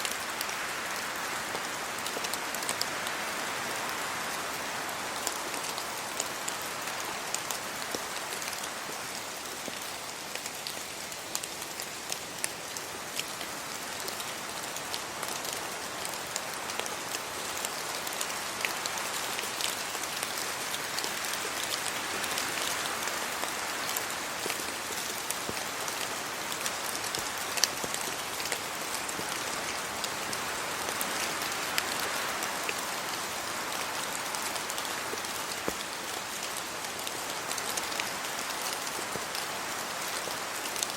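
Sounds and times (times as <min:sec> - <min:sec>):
steady rainfall hiss: 0:00.0 - 0:40.9
raindrops ticking: 0:05.2 - 0:38.1.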